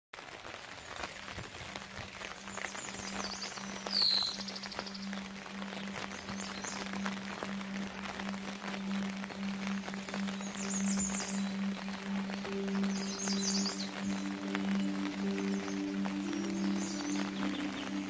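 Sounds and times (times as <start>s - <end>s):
rain pattering in a forest: 0.1s - 18.0s
bird chirping and trilling: 2.5s - 7.2s, 9.3s - 18.0s
steady low tone: 4.4s - 18.0s.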